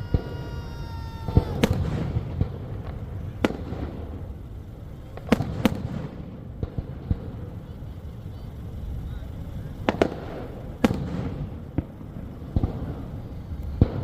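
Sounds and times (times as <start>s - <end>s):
fireworks bangs: 0.0s - 14.0s.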